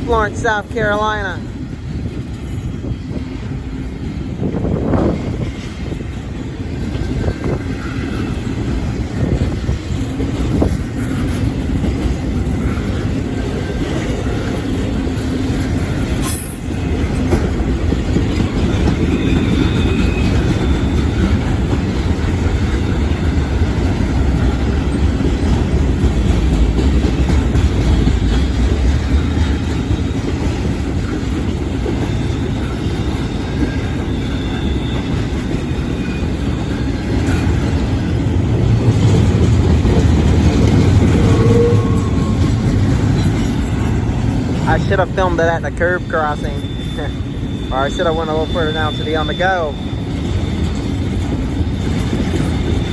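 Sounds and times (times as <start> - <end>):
freight train rolling past: 0.0 - 52.9
high wheel squeal: 15.7 - 17.2, 18.5 - 24.9, 29.1 - 38.2, 40.4 - 52.9.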